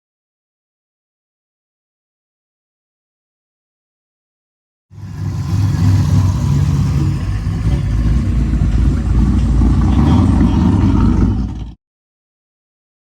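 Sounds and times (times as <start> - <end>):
car engine rumbling: 5.0 - 11.8.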